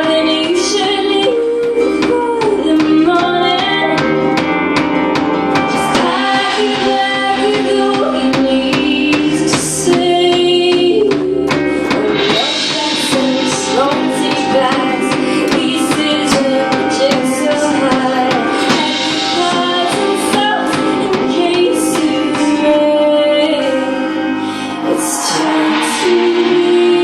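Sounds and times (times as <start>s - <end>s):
person singing: 0.0s - 4.5s, 5.3s - 27.0s
guitar: 0.0s - 27.0s
drum beat: 2.0s - 22.5s.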